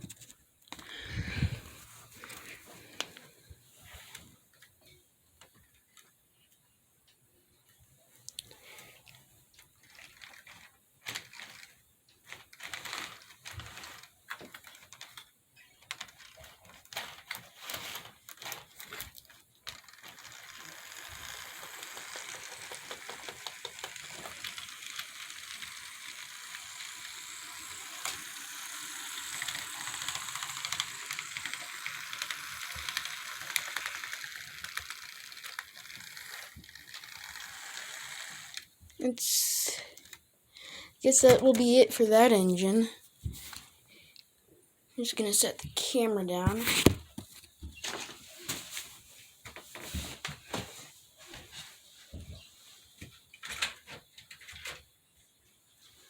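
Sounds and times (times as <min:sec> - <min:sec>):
model locomotive motor whirring: 0:17.1 - 0:39.0.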